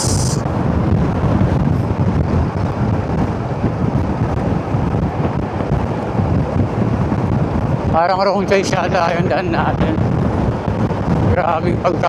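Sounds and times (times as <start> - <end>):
motorcycle riding on road: 0.0 - 8.0
wind buffeting microphone: 0.0 - 12.0.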